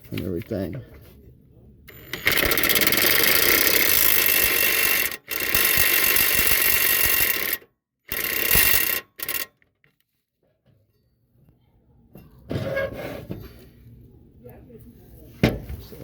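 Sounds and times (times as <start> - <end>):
impact driver hammering: 1.9 - 9.5.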